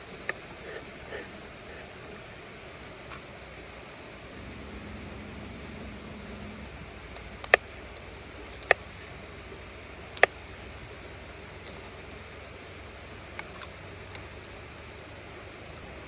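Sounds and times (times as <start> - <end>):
steady background hiss: 0.0 - 16.0
faint ticks: 13.3 - 15.2.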